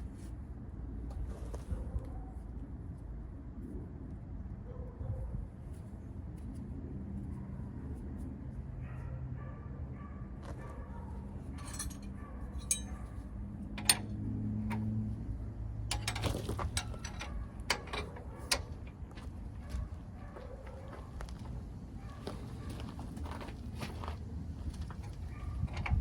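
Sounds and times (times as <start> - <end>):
metal tools clinking: 11.6 - 15.1, 15.8 - 19.0.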